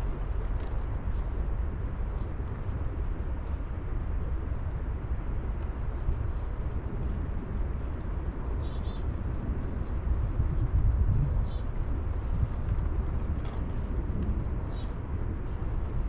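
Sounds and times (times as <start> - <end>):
small birds chirping: 0.6 - 2.5, 5.8 - 6.7, 8.0 - 9.5, 11.2 - 11.7, 14.5 - 15.0.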